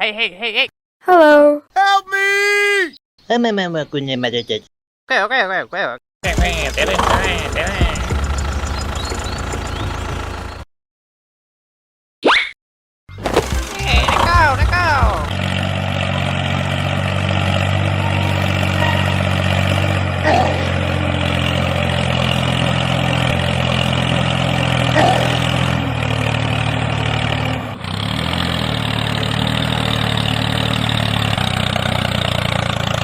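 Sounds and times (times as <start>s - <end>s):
vehicle engine idling: 6.2s - 10.6s, 13.2s - 33.0s.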